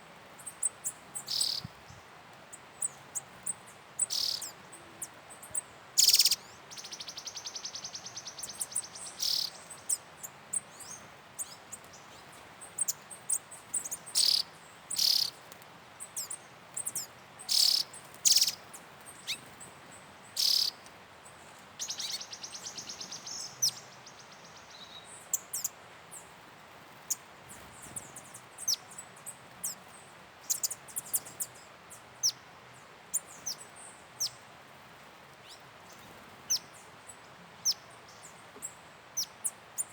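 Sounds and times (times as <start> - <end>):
high bird chirps: 1.2 - 1.7, 4.0 - 4.5, 6.0 - 9.6, 14.2 - 14.4, 15.0 - 15.3, 17.0 - 18.6, 20.4 - 20.7.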